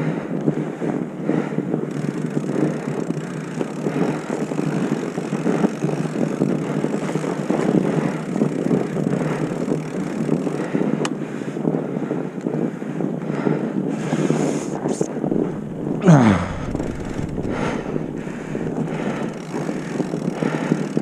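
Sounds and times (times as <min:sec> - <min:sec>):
wind buffeting microphone: 0:00.0 - 0:21.0
rough scraping: 0:14.4 - 0:20.6.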